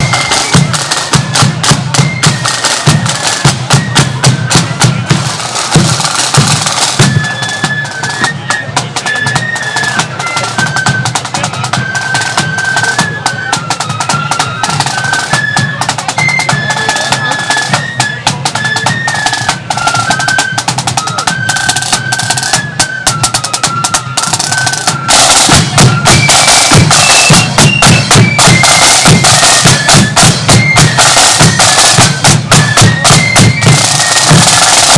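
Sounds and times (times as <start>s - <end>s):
flute melody: 0.0s - 34.9s
snare drum rolls: 0.0s - 34.9s.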